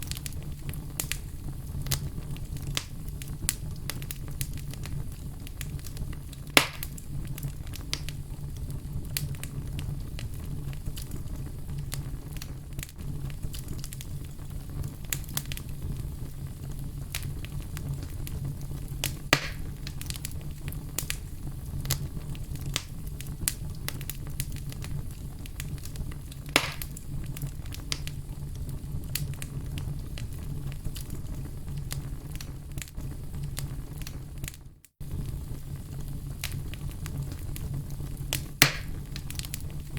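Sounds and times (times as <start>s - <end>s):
fire crackling: 0.0s - 39.9s
loud sharp pops: 6.6s - 7.0s, 19.3s - 19.9s, 26.5s - 27.0s, 38.6s - 39.0s.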